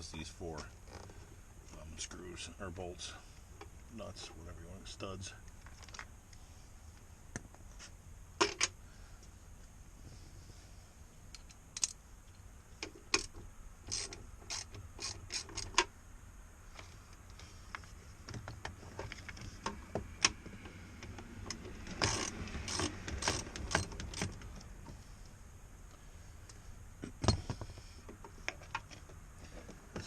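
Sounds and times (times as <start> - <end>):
hand tools clicking and rattling: 12.8 - 15.9, 21.0 - 24.7.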